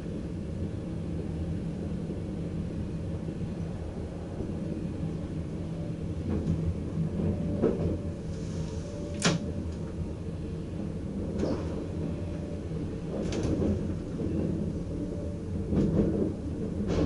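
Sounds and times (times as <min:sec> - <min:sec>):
train low rumble: 0:00.0 - 0:17.0.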